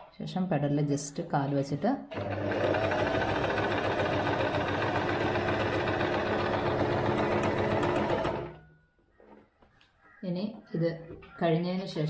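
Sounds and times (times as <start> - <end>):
electric sewing machine stitching: 2.1 - 8.6.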